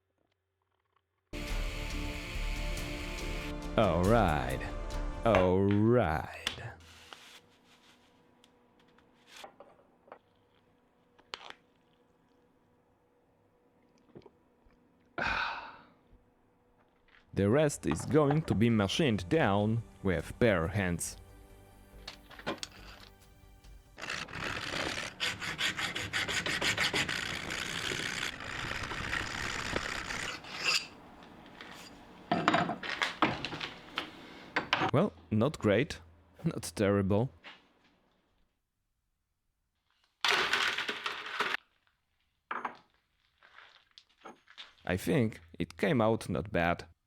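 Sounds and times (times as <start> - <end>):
hand filing metal: 24.0 - 31.0.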